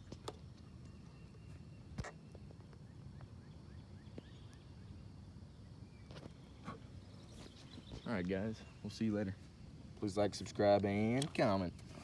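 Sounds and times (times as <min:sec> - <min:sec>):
distant bird chirps: 0:00.0 - 0:09.3.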